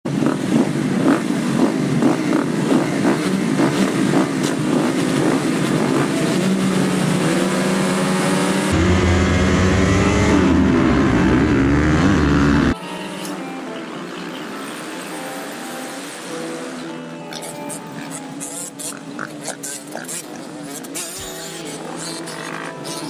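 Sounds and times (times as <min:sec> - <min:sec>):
motocross bike engine revving: 0:00.1 - 0:12.8
steady deep drone: 0:05.8 - 0:12.8.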